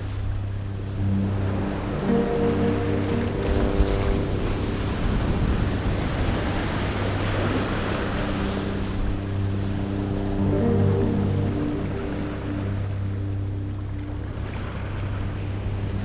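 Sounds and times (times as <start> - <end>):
low hum of held tones: 0.0 - 16.0
sea surf: 0.0 - 16.0
wind noise: 3.0 - 11.2.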